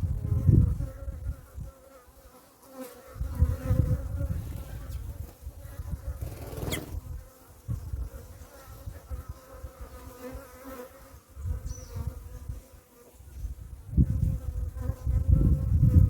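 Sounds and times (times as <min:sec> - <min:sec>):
bees buzzing: 0:05.8 - 0:07.2.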